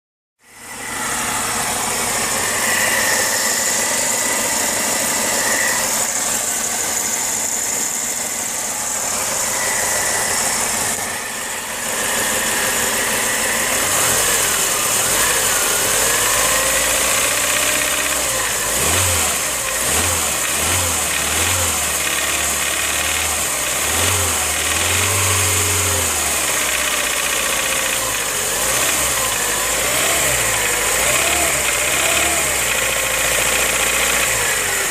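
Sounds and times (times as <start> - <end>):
car engine running: 0.4 - 34.9
engine knocking: 12.0 - 34.9.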